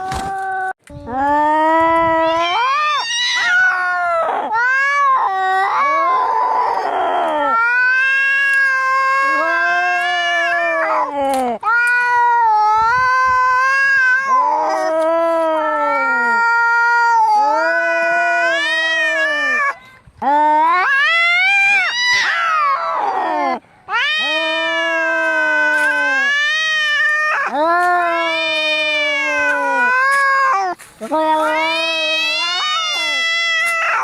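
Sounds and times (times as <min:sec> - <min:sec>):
cats yowling in a fight: 0:02.0 - 0:19.8, 0:20.4 - 0:34.0.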